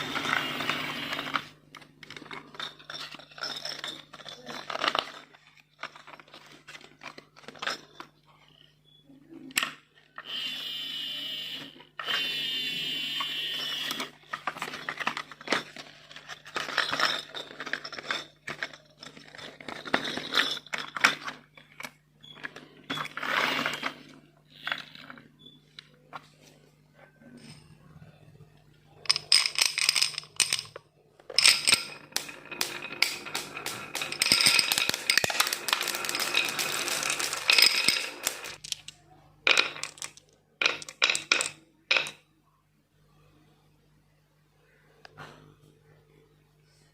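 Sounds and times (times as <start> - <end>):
marbles rolling on plastic track: 0.0 - 8.1, 12.0 - 25.5, 29.0 - 42.2.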